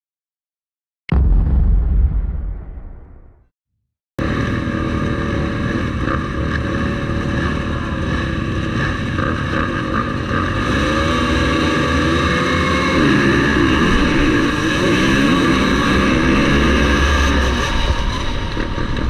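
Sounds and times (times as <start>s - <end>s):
motorcycle engines revving: 4.2s - 19.0s.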